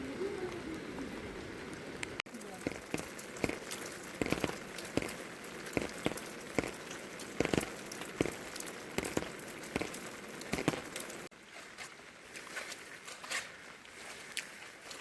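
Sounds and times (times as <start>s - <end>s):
heavy raindrops tapping: 0.0s - 11.4s
rain falling: 0.0s - 15.0s.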